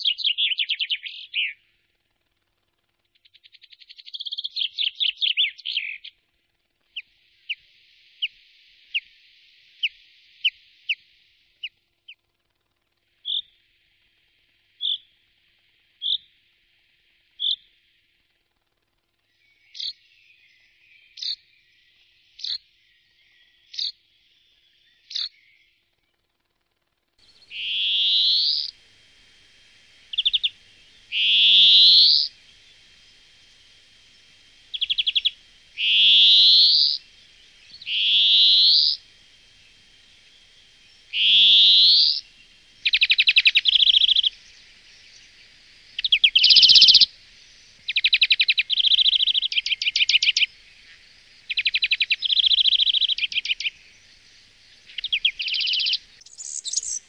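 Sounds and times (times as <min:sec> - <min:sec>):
bird calling rising notes: 0:27.2 - 0:57.0
bird rattling trills: 0:27.2 - 0:57.0.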